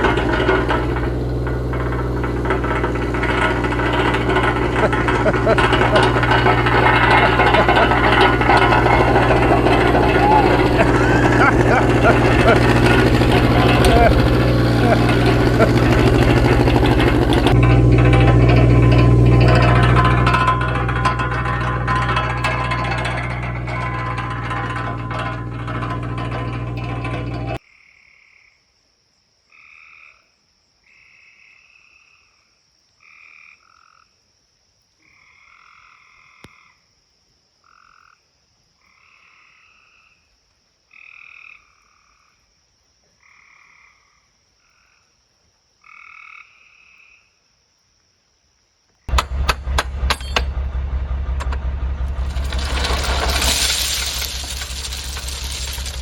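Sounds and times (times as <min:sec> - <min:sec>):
engine-like rumble with rattling clicks: 0:00.0 - 0:27.6, 0:49.1 - 0:56.0.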